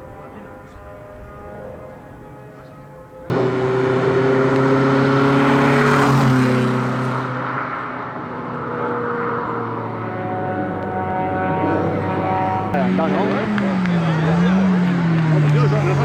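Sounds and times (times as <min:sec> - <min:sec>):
car engine revving hard: 0:03.3 - 0:16.0.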